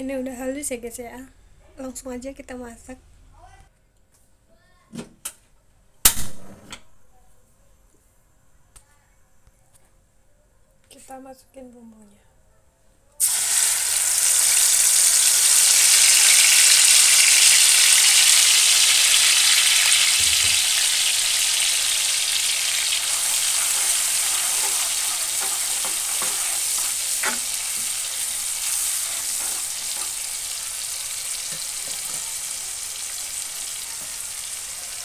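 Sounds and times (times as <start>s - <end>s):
spice paste sizzling in hot oil: 13.2s - 35.0s
spatula tapping pan: 23.3s - 30.4s.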